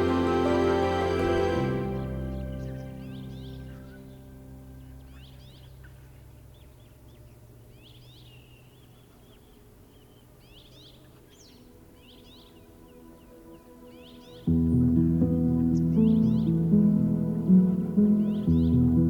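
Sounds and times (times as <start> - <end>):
soft music: 0.0 - 5.7, 11.3 - 19.0
small birds chirping: 0.0 - 19.0.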